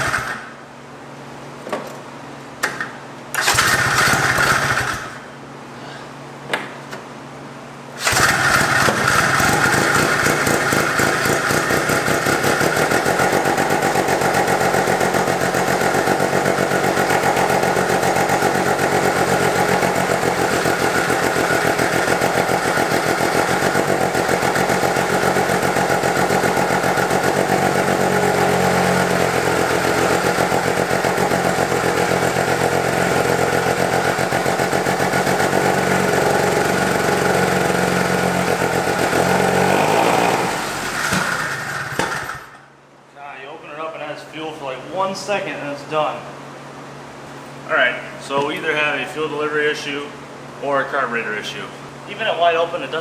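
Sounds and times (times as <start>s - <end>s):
rotary engine running unevenly: 8.0s - 42.4s.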